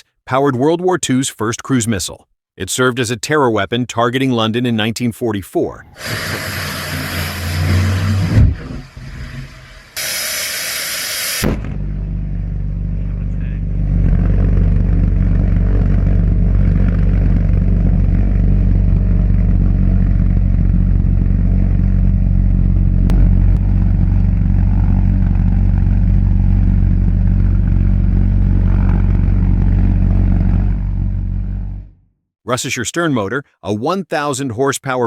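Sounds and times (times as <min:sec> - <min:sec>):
pulse jet engine buzzing: 0:05.9 - 0:32.0.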